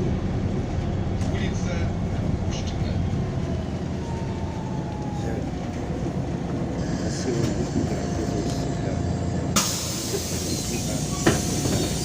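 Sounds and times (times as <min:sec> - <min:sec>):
bus engine and road rumble: 0:00.0 - 0:12.0
air hiss: 0:09.6 - 0:12.0.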